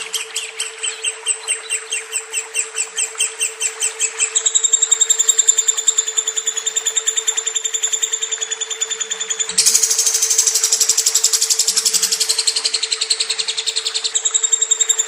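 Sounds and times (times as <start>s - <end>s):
lovebird chattering chirps: 0.2s - 15.0s
low hum: 9.3s - 13.8s.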